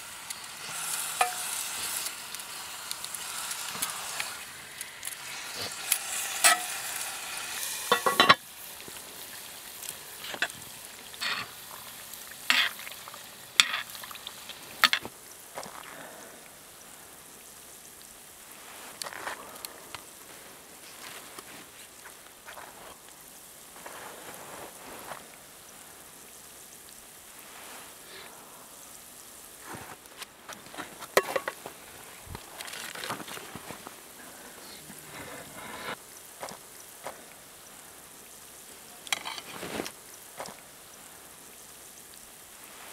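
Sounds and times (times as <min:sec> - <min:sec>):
food sizzling in oil: 0:00.0 - 0:42.9
utensil scraping a pan: 0:00.6 - 0:02.2, 0:05.2 - 0:08.4, 0:10.3 - 0:11.6, 0:12.4 - 0:12.9.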